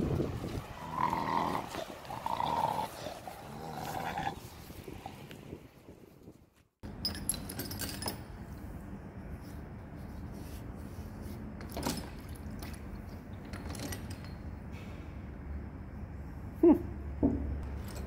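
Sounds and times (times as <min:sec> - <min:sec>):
metal tools clinking and scraping: 0:06.9 - 0:08.5, 0:13.4 - 0:14.6, 0:17.6 - 0:18.0.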